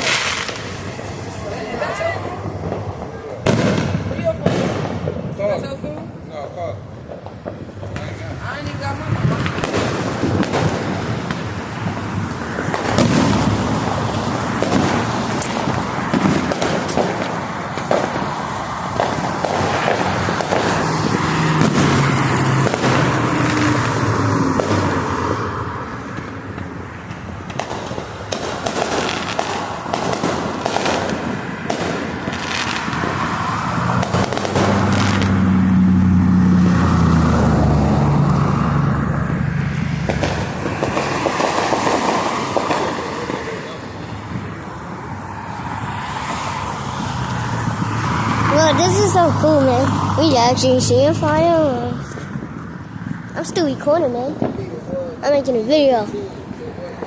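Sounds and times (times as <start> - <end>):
constant rumble: 0.0 - 24.8, 38.9 - 45.3
fireworks bangs and crackles: 0.0 - 57.0.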